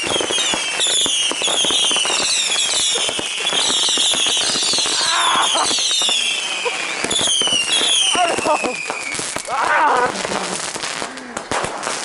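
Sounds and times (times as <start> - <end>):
firework whistles falling in pitch: 0.0 - 9.5
firework crackle of sharp pops: 0.0 - 12.0.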